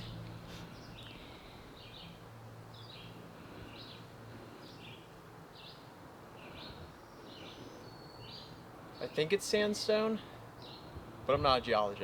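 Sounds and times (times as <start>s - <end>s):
low droning buzz: 0.0s - 3.6s
songbird chirping: 0.0s - 11.0s.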